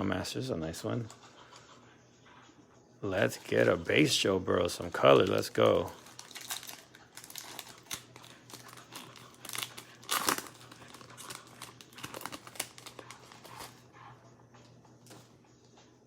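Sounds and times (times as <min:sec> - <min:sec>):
plastic wrapper crinkling and tearing: 0:05.1 - 0:13.8.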